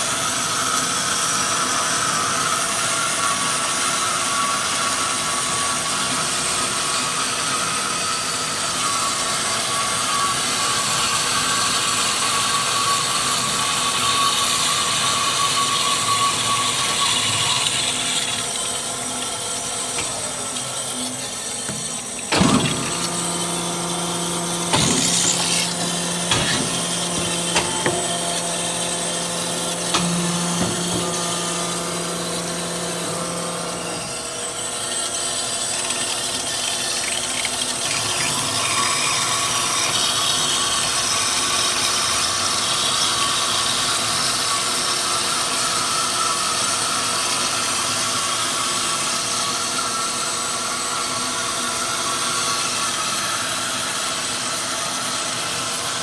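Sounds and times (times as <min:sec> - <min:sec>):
band saw cutting metal: 0:00.0 - 0:56.0
sharp machine clanks: 0:24.6 - 0:29.1.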